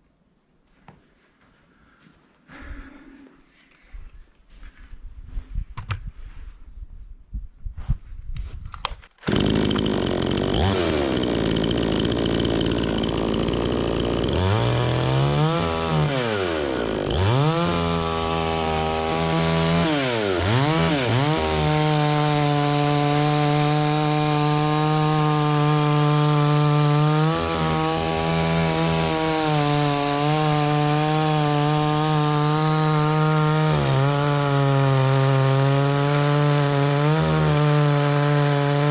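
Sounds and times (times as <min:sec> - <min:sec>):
chainsaw cutting wood: 0:08.8 - 0:38.9.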